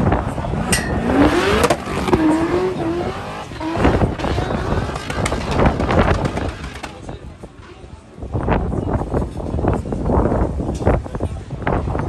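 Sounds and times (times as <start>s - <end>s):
car engine revving: 0.1s - 7.1s.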